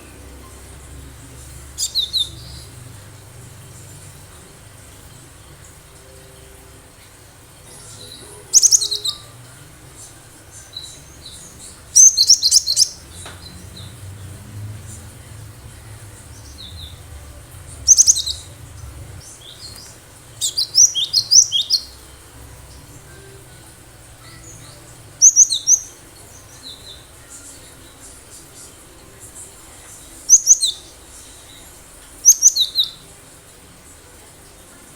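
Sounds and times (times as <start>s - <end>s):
bird chirping high-pitched: 0.1s - 5.2s, 7.6s - 9.5s, 10.4s - 27.2s, 30.2s - 30.9s, 32.2s - 33.0s.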